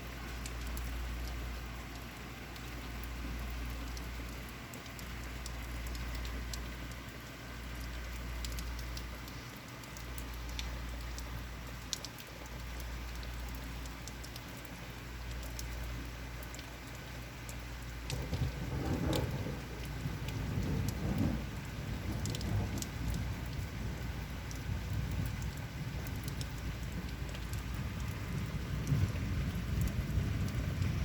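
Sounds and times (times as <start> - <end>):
rain falling: 0.0 - 31.0
low rumble: 18.1 - 31.0.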